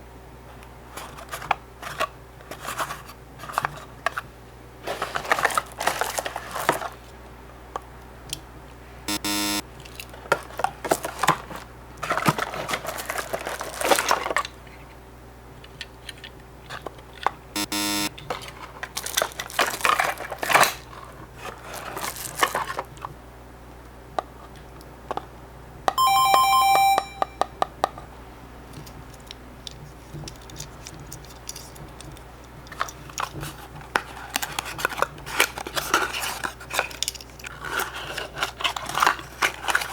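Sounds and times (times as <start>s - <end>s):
toy cars handled in cardboard boxes: 0.8s - 7.1s, 9.8s - 14.9s, 18.2s - 23.1s, 28.8s - 39.9s
electronic beeping tones: 9.1s - 9.6s, 17.6s - 18.1s, 26.0s - 27.6s.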